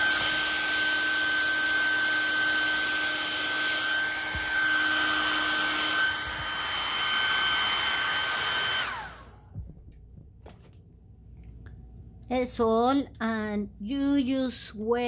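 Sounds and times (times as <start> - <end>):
hair dryer blowing: 0.0 - 9.7.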